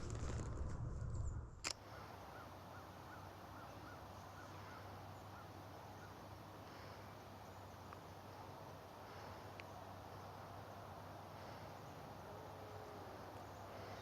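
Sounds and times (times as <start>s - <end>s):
low rumbling handling noise: 0.0s - 1.8s.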